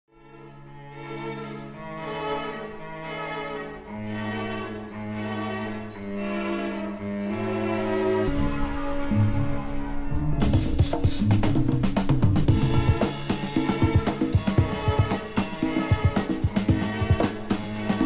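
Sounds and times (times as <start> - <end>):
orchestral string music: 0.1 - 18.0
percussion: 8.2 - 18.0.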